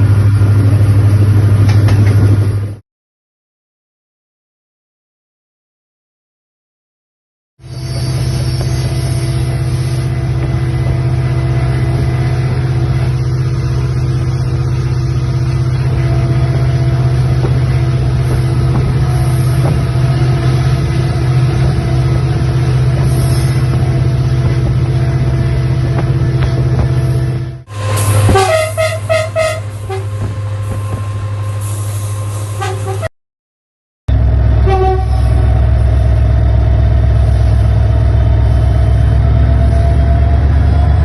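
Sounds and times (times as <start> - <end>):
large engine droning: 0.0 - 2.8, 7.7 - 33.1, 34.1 - 41.0.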